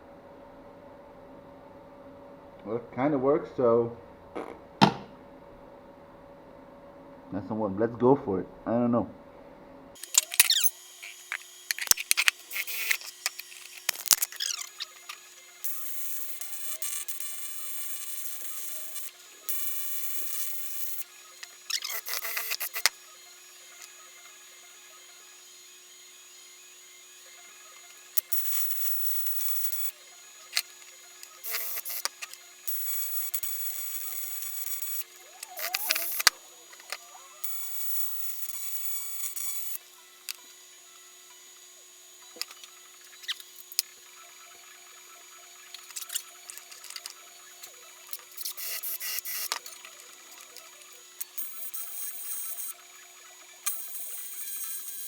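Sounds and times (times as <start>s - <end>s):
clicks and knocks: 4.8s - 5.1s
welding arc buzzing: 10.0s - 25.2s, 26.2s - 55.0s.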